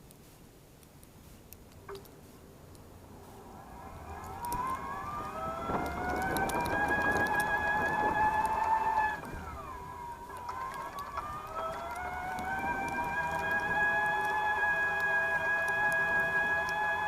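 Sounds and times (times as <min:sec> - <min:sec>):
electric scooter motor whining: 0:02.8 - 0:17.0.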